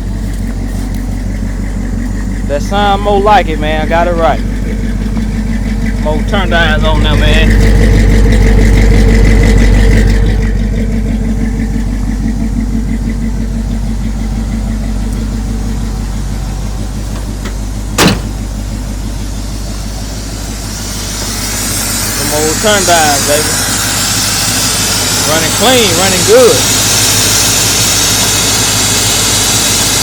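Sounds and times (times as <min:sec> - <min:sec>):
car engine idling: 0:00.0 - 0:30.0
sharp engine knock: 0:17.0 - 0:18.5.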